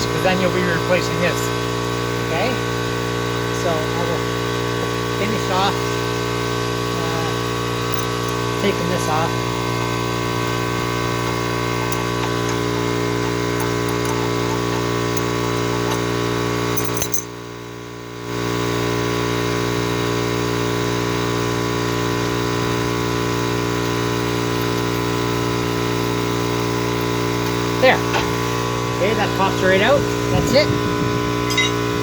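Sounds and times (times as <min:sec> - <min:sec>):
steady hum of even tones: 0:03.5 - 0:17.4, 0:23.4 - 0:32.0
metallic clinks of hand tools: 0:07.9 - 0:08.4, 0:11.7 - 0:16.1, 0:16.7 - 0:17.4.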